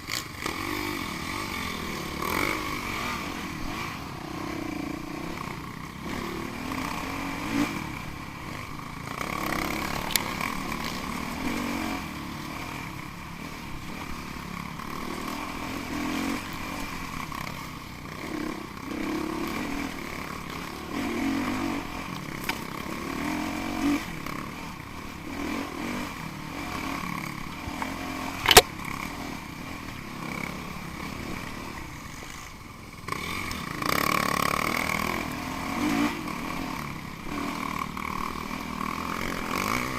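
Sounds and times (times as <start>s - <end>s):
dirt bike engines revving: 0.0s - 39.9s
sharp click or knock: 28.4s - 28.7s.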